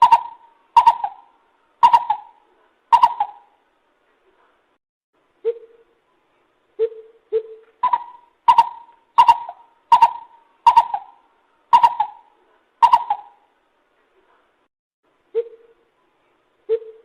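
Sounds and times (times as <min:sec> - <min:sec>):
bird hooting calls: 0:00.0 - 0:03.6, 0:06.8 - 0:13.5, 0:16.7 - 0:17.0.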